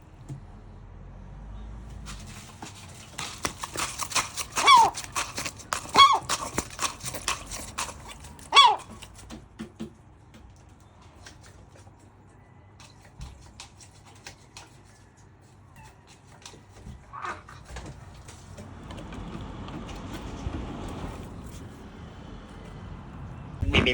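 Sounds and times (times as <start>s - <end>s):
gull calling: 4.5s - 5.1s, 5.8s - 6.4s, 8.5s - 9.0s.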